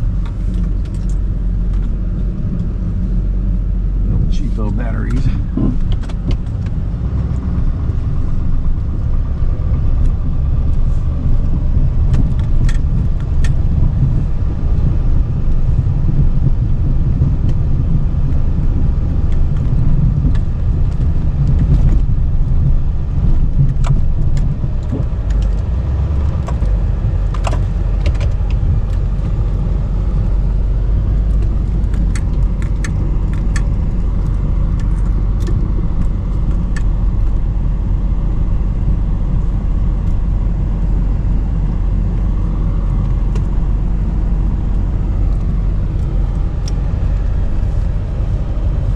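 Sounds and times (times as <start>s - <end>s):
diesel truck engine rumbling: 0.0s - 48.9s
light clicks and rattles: 31.2s - 37.4s.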